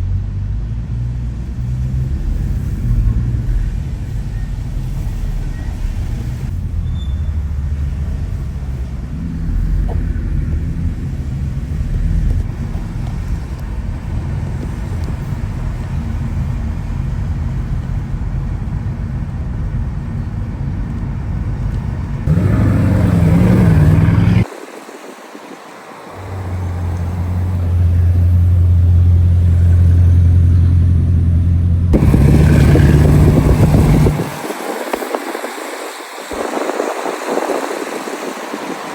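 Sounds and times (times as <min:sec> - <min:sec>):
car engine low rumble: 0:00.0 - 0:24.5, 0:26.0 - 0:35.6.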